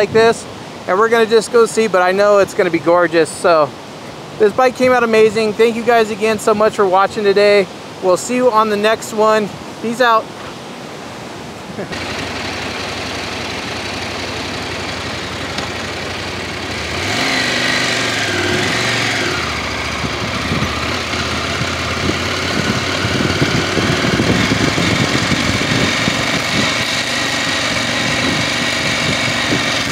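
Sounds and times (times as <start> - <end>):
motorcycle engines idling: 11.9 - 29.9
motorcycle riding off: 11.9 - 29.9.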